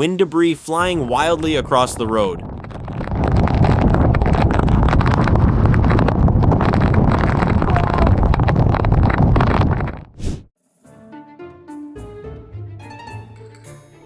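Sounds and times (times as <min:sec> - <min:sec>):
storm wind buffeting microphone: 0:00.4 - 0:10.5.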